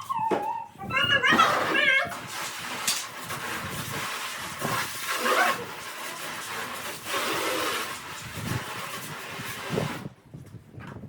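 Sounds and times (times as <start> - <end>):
pressure washer spraying: 1.6 - 10.1.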